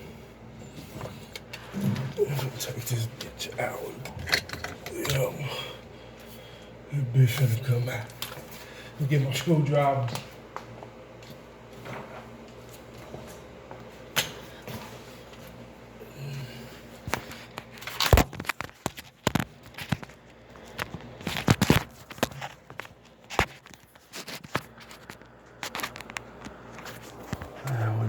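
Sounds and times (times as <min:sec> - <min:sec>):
tools and parts clattering: 0:04.1 - 0:05.2.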